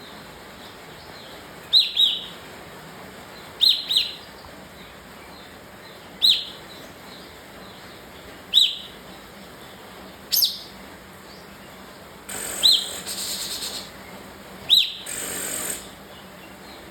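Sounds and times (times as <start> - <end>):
bird sharp calls: 10.3 - 10.7, 12.3 - 16.3.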